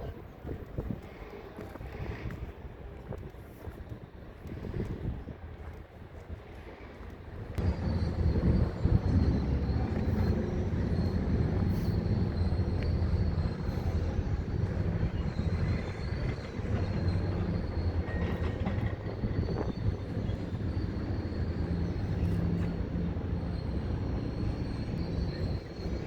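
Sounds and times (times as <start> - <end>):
excavator diesel engine: 7.6 - 26.0
steady high whine: 7.6 - 26.0.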